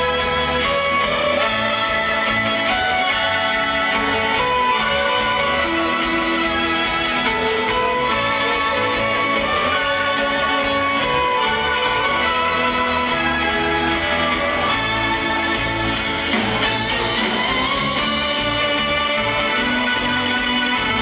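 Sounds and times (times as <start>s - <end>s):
live band instrumental: 0.0s - 21.0s.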